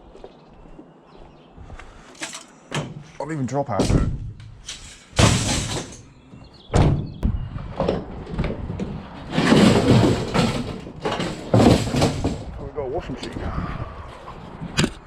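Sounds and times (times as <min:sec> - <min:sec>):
scraping: 0:03.8 - 0:06.2, 0:07.8 - 0:12.6
vehicle door clunks: 0:06.6 - 0:07.2.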